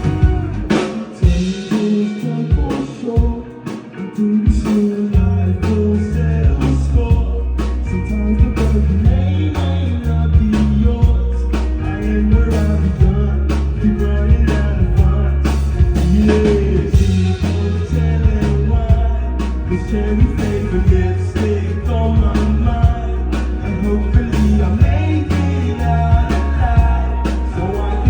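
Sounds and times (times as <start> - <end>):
heavy bass and guitar: 0.0 - 28.0
person singing: 0.0 - 28.0.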